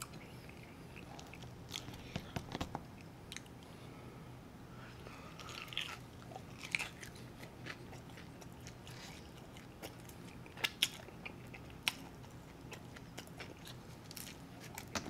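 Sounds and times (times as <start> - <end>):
man chewing wetly: 5.3 - 15.0.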